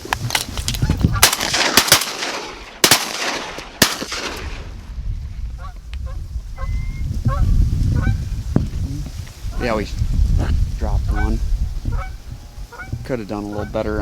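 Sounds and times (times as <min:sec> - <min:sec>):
shotgun blasts: 0:01.2 - 0:04.7
geese honking: 0:11.1 - 0:14.0.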